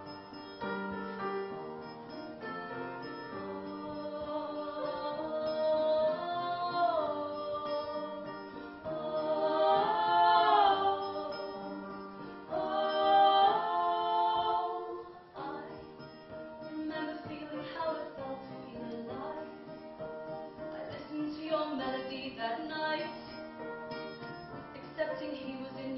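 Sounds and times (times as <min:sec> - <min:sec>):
acoustic instruments playing: 0:00.0 - 0:25.9
women singing in harmony: 0:03.3 - 0:19.8, 0:20.7 - 0:23.3, 0:24.8 - 0:25.9.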